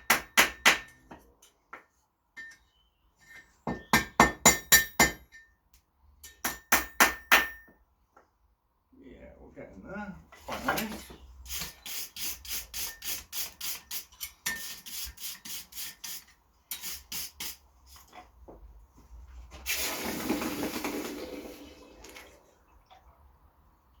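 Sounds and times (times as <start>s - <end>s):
hot steel quenching hiss: 11.5s - 17.6s.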